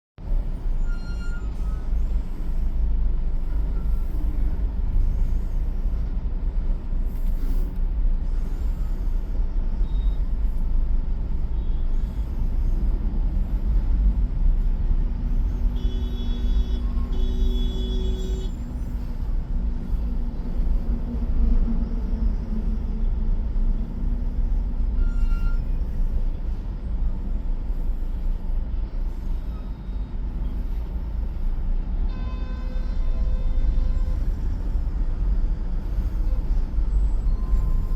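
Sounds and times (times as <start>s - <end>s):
road traffic rumble: 0.2s - 37.9s
vehicle horn blasts: 15.8s - 18.6s, 32.1s - 34.0s.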